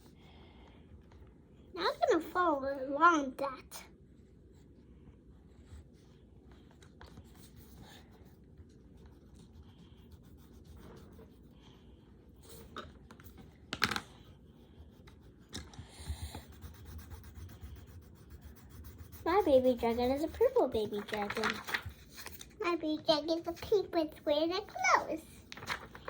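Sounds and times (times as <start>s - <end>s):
colour pencils scratching on paper: 5.4s - 26.0s.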